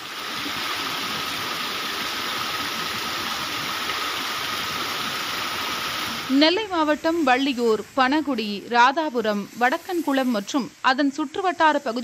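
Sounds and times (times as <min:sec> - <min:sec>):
heavy rain and wind: 0:00.0 - 0:07.4.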